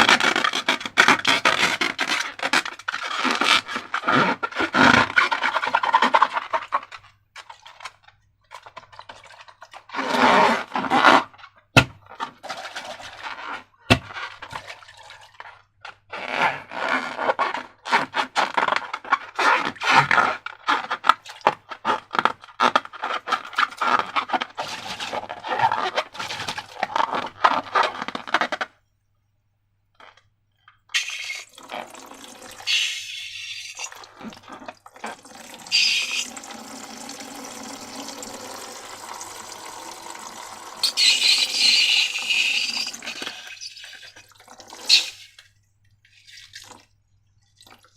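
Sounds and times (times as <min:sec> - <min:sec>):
liquid pouring: 0:30.9 - 0:45.5.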